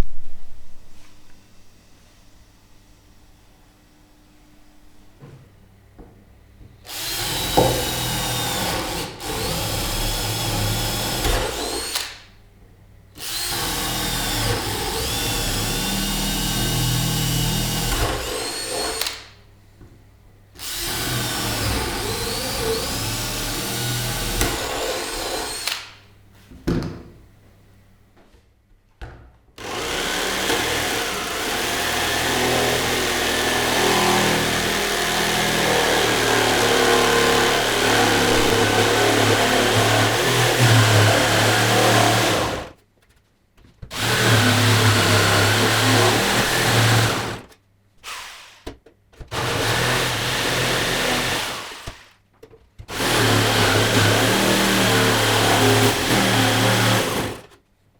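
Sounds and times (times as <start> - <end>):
power tool motor running: 6.9 - 12.3, 13.2 - 19.4, 20.6 - 26.0, 29.6 - 42.7.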